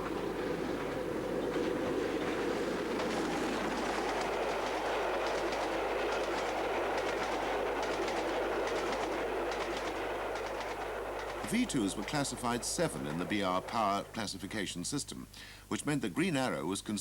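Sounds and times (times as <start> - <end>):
steam locomotive running: 0.0 - 15.2
light rapid clicks: 2.8 - 14.2.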